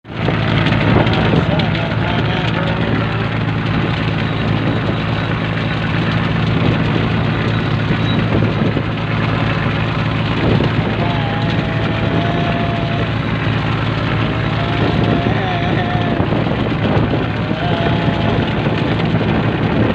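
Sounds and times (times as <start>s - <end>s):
boat diesel engine humming: 0.0s - 19.9s
water wash: 0.0s - 19.9s.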